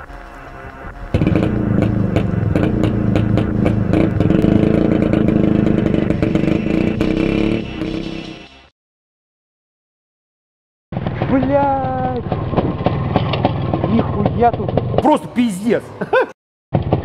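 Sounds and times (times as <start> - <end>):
two-stroke motorcycle engine revving: 1.1 - 8.4
clicks and clatter: 11.0 - 15.0.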